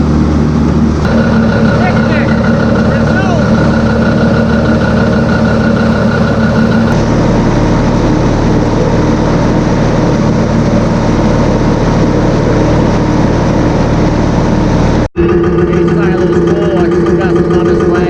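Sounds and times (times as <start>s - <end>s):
blower hissing: 0.0s - 15.1s
tractor engine running: 0.0s - 18.0s
high steady tone: 1.1s - 7.3s.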